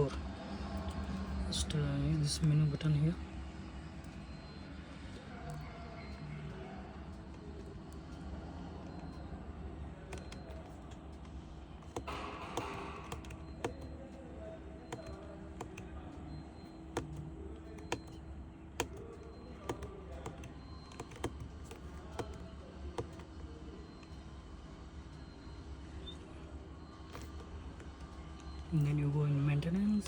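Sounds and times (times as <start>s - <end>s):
dashboard buttons clicking: 11.8s - 13.9s, 14.8s - 15.8s, 16.9s - 18.2s, 18.8s - 23.4s, 27.1s - 28.0s.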